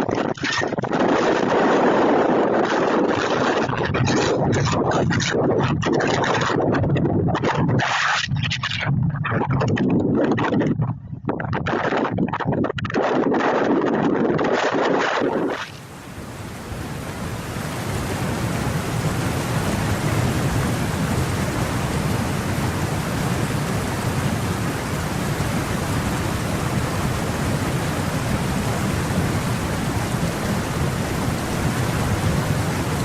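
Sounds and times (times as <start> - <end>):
storm wind: 0.0 - 33.0
heavy rain: 15.8 - 33.0.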